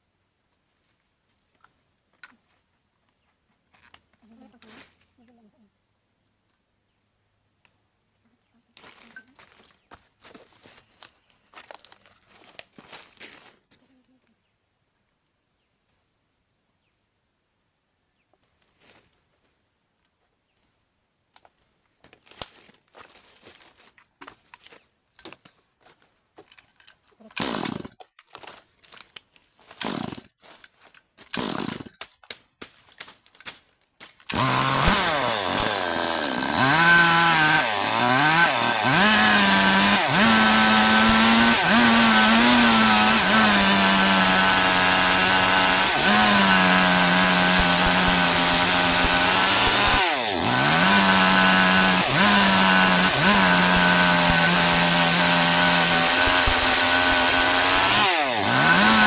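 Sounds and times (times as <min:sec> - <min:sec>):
chainsaw cutting log: 0:27.2 - 0:28.1, 0:29.6 - 0:30.4, 0:31.2 - 0:32.1, 0:34.2 - 0:59.0.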